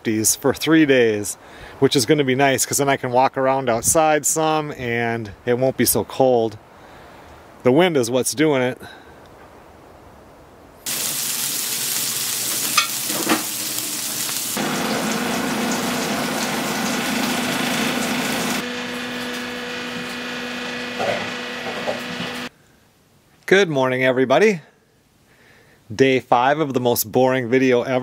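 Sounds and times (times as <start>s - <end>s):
food sizzling in a pan: 10.9s - 22.5s
steady hum: 14.6s - 22.5s.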